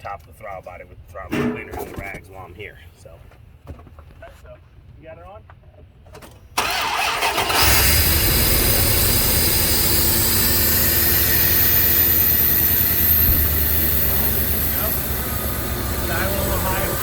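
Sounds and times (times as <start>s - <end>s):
engine idling: 6.6s - 17.0s
starter cranking engine: 6.6s - 17.0s.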